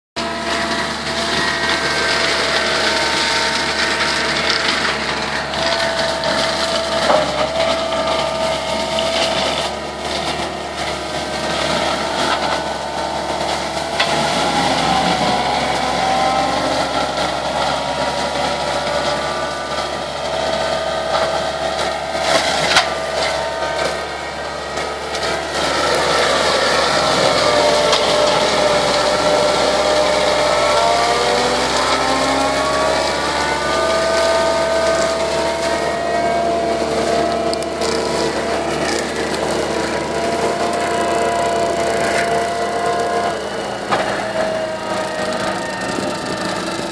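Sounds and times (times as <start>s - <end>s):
mulcher whining: 0.2s - 46.9s
wood cracking: 0.7s - 36.1s.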